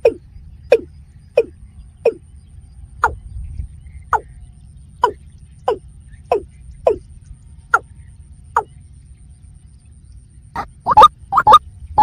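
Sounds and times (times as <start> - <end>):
bird calling with falling notes: 0.0 - 2.2, 5.0 - 7.1, 10.6 - 11.6.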